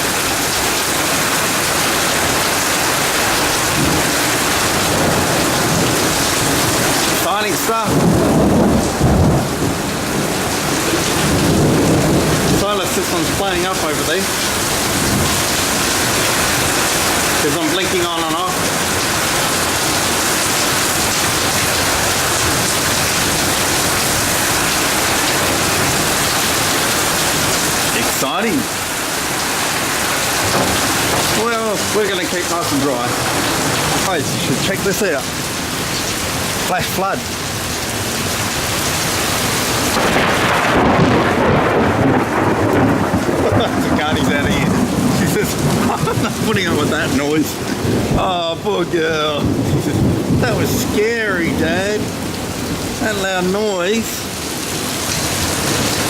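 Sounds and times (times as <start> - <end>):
heavy rain pouring: 0.0 - 56.0
low thunder rumble: 1.2 - 35.5, 39.4 - 53.0.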